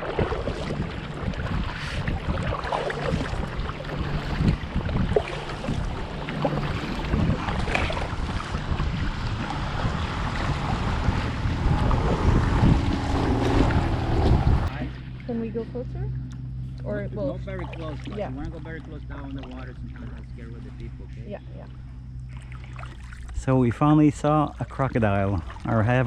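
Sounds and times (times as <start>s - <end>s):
wind buffeting microphone: 0.0s - 15.0s
water sloshing and splashing: 0.0s - 23.6s, 24.2s - 26.0s.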